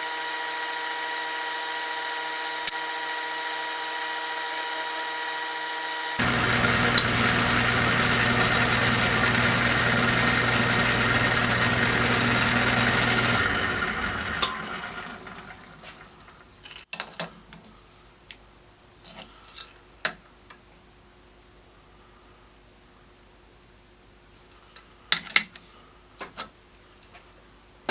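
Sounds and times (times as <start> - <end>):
motor spinning down: 0.0 - 16.2
machine-tool motor humming: 0.0 - 16.4.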